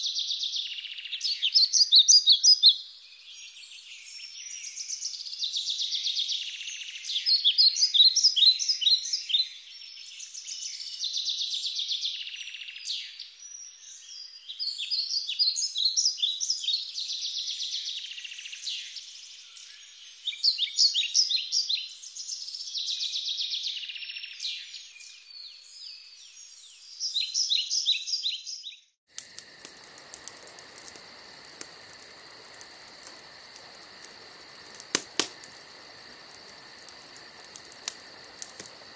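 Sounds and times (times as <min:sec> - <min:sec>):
songbirds singing: 0:00.0 - 0:38.9
crickets chirring: 0:29.1 - 0:38.9.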